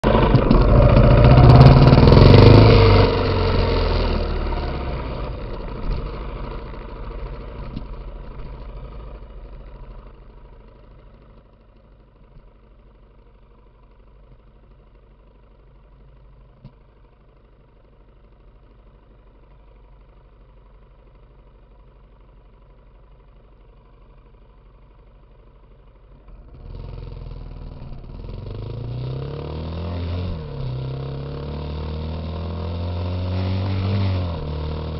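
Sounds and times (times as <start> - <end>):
motorcycle engine revving: 0.0 - 10.1, 26.3 - 34.9.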